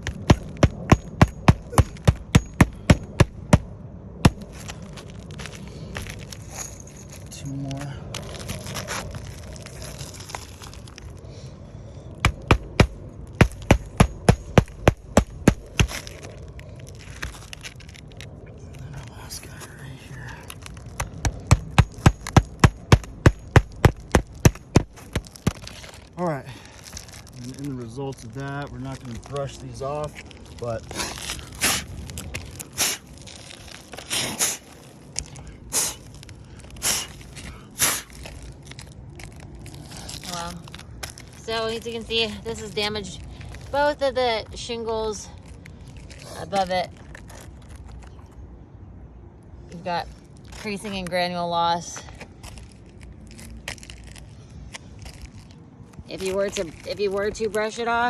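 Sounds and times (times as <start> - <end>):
gritty scrapes on roof shingles: 24.1 - 38.8.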